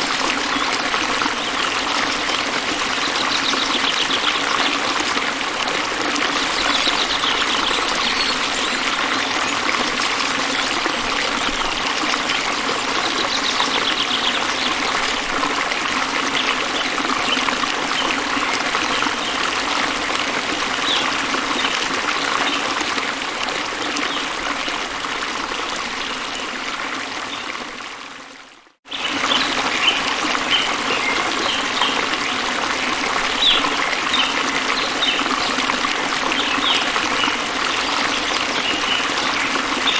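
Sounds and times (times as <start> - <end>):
stream water running: 0.0 - 39.9
faint high chirps: 6.4 - 10.0.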